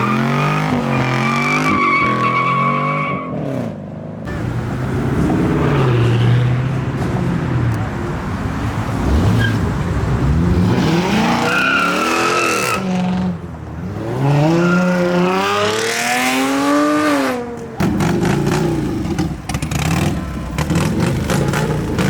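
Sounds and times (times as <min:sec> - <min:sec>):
tyres squealing: 0:11.2 - 0:13.0.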